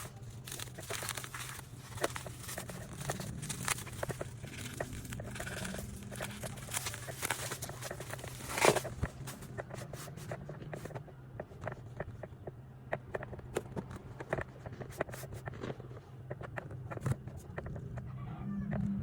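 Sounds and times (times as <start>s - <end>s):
packaging rustling and crinkling: 0.0s - 11.0s
steady low hum: 0.0s - 19.0s.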